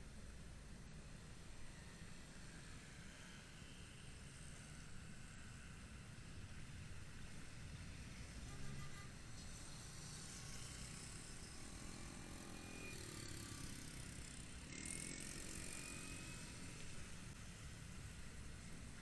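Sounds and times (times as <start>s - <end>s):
traffic noise: 0.0s - 19.0s
motorcycle road noise: 4.3s - 19.0s.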